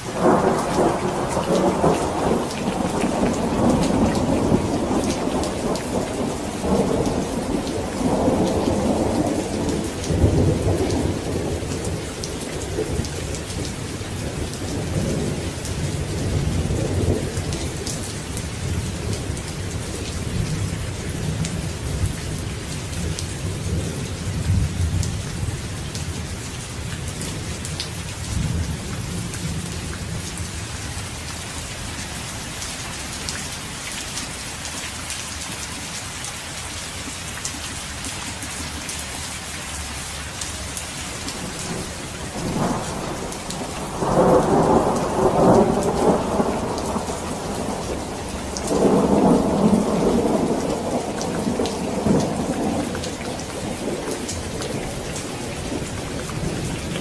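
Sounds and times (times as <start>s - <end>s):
heavy rain: 0.0s - 57.0s
thunder rumbling: 0.1s - 22.4s, 40.6s - 57.0s.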